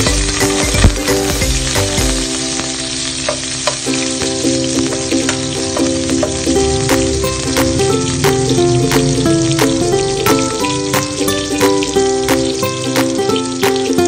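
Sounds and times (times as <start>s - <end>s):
onion sizzling in hot oil: 0.0s - 14.0s.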